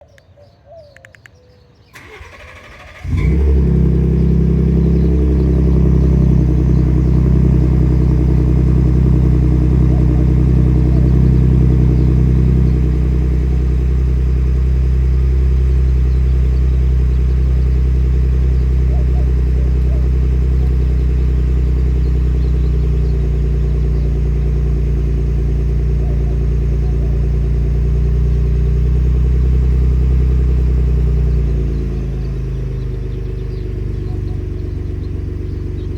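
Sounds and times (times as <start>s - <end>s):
engine cranking: 2.0s - 27.7s
engine loud cold idle: 2.0s - 35.9s.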